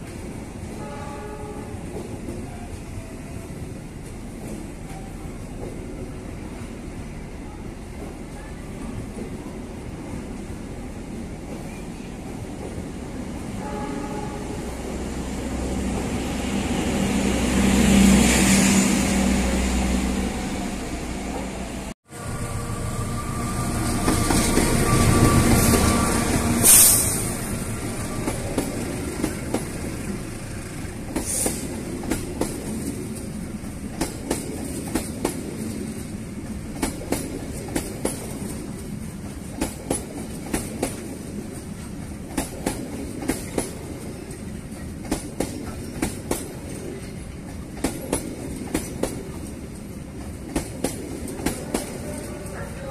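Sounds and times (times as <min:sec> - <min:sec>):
train passing: 0:00.0 - 0:52.9
train wheel screech: 0:22.2 - 0:28.8.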